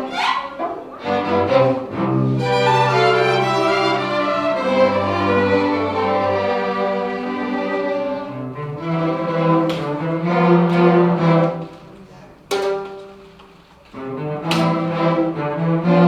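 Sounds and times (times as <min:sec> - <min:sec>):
chamber orchestra bowed strings: 0:00.0 - 0:16.0.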